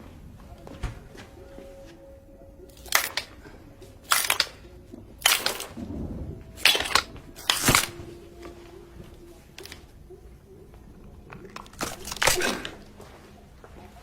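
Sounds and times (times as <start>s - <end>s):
bones cracking: 2.7s - 3.4s, 4.0s - 8.6s, 10.7s - 13.2s.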